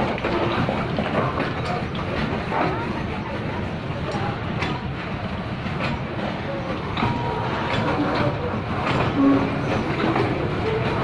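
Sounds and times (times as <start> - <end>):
steel wheels rumbling on rails: 0.0 - 11.0
wheels clacking over rail joints: 0.0 - 11.0
train wheel squeals: 5.9 - 11.0.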